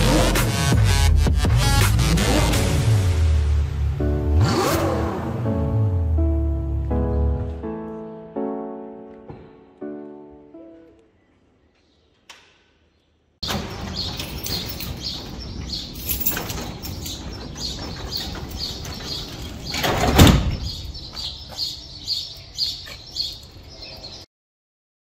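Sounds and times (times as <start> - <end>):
outdoor rumble: 13.4 - 22.0
small bird chirping: 13.6 - 19.8, 20.6 - 24.3.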